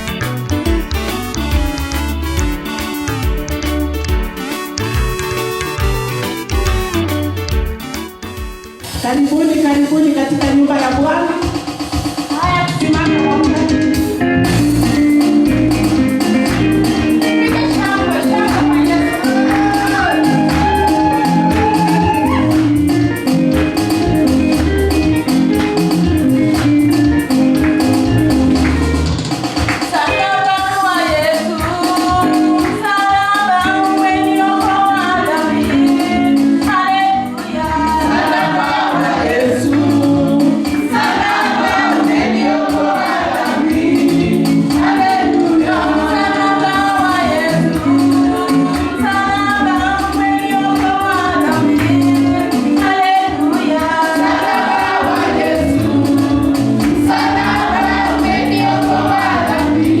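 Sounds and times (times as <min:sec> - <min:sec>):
congregation singing gospel: 0:13.5 - 1:00.0.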